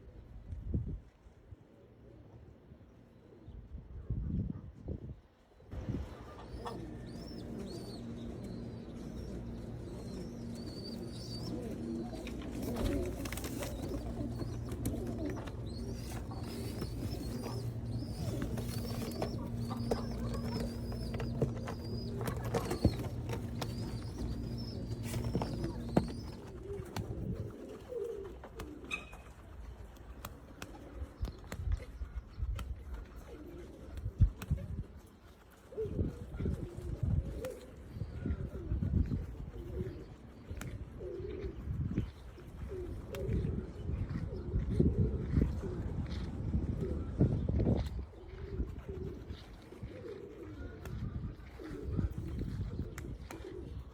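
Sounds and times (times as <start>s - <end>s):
steady low hum: 5.7s - 27.6s
pigeons cooing: 5.8s - 32.3s, 33.0s - 53.9s.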